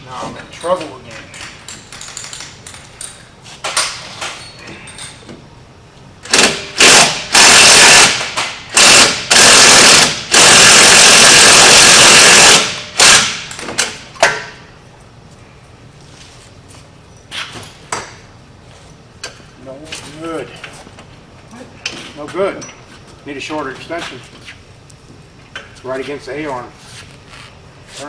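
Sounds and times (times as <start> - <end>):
impact wrench hammering: 6.3 - 14.5.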